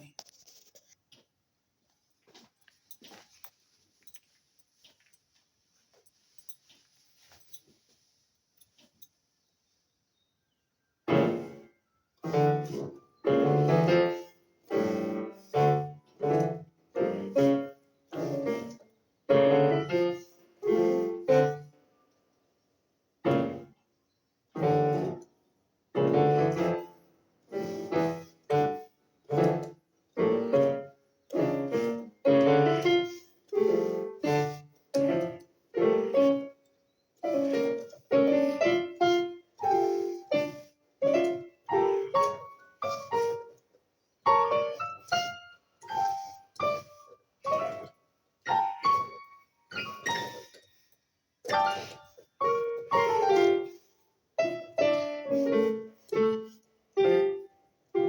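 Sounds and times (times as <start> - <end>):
piano playing detached chords: 11.1 - 11.6, 12.2 - 14.2, 23.3 - 23.7, 26.0 - 26.9.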